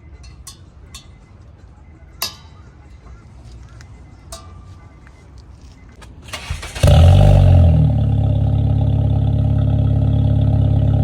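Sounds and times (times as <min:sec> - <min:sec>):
car engine cranking and idling: 0:05.6 - 0:11.0.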